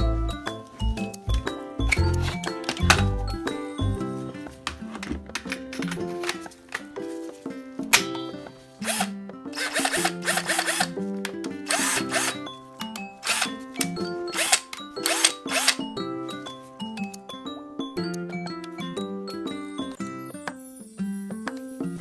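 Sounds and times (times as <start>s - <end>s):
background music: 0.0s - 22.0s
power tool motor bursts: 8.8s - 11.0s, 11.7s - 12.4s, 13.2s - 15.9s.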